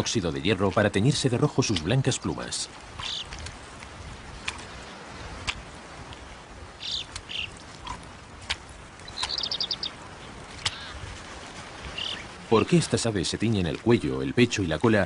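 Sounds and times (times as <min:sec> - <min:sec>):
steady hiss: 0:00.0 - 0:15.0
bird trill: 0:09.1 - 0:10.0
high bird chirps: 0:09.1 - 0:10.0.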